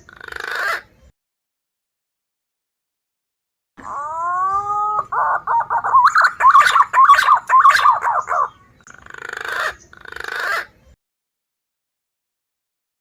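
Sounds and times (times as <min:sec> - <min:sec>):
buzzy bird phrases: 0:00.0 - 0:01.1, 0:03.8 - 0:11.0
pigeon warbling whistled song: 0:03.8 - 0:10.7.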